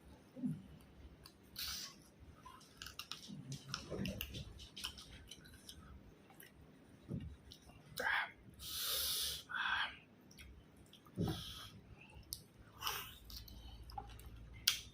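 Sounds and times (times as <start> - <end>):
mouth clicks and smacks: 0.7 - 8.2, 10.3 - 11.6, 12.2 - 14.9
person chewing food: 10.3 - 14.9.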